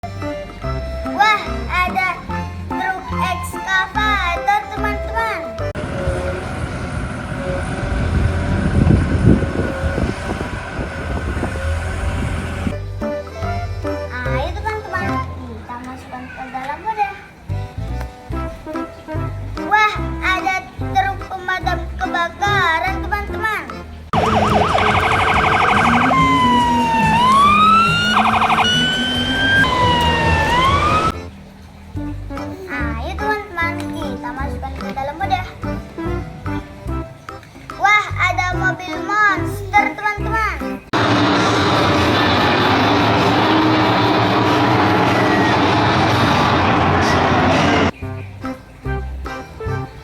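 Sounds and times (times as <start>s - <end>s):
electronic toy siren: 24.2s - 31.2s
machine rumbling with high whine: 41.0s - 47.9s.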